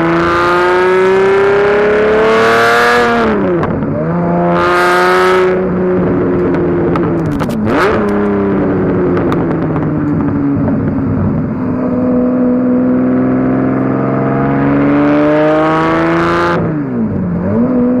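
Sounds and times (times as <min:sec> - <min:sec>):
sports car engine accelerating: 0:00.0 - 0:18.0
exhaust cracks: 0:06.0 - 0:12.0.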